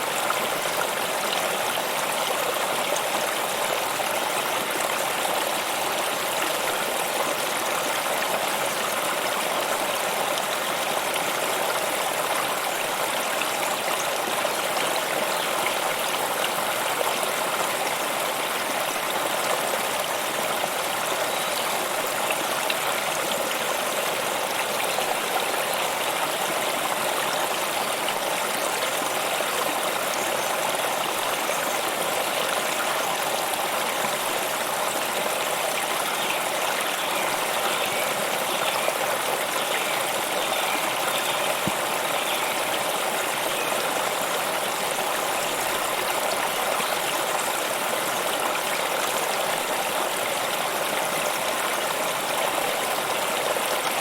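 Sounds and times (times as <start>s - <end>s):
stream water running over rocks: 0.0s - 54.0s.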